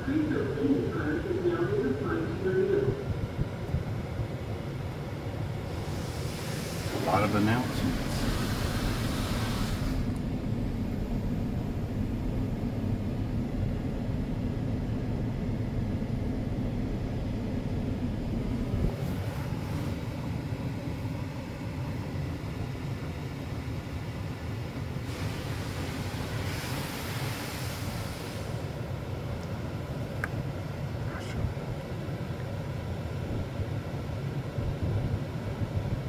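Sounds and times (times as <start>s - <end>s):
car engine idling: 5.7s - 15.2s.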